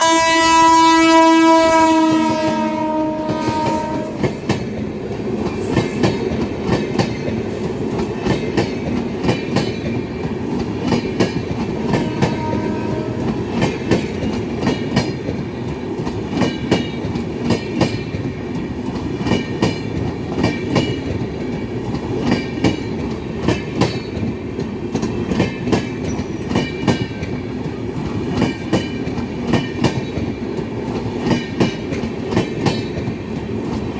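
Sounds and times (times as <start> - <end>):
locomotive horn: 0.0 - 4.4, 11.8 - 13.5
train coaches rumbling past: 0.0 - 33.9.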